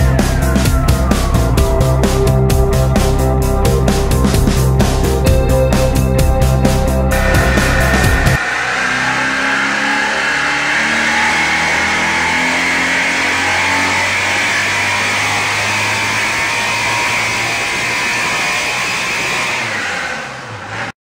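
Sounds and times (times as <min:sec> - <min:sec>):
guitar music: 0:00.0 - 0:08.4
engine whining on dynamometer: 0:00.0 - 0:21.0.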